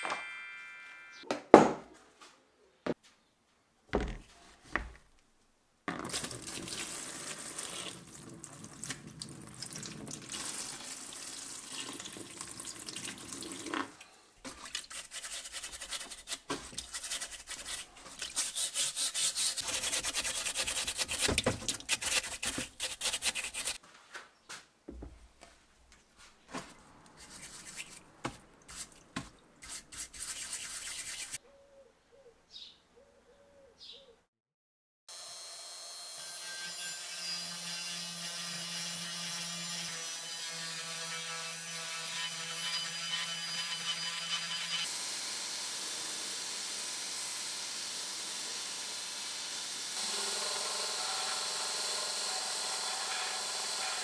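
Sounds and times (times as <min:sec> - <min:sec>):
brush scrubbing metal: 0:14.5 - 0:23.8, 0:27.1 - 0:31.4.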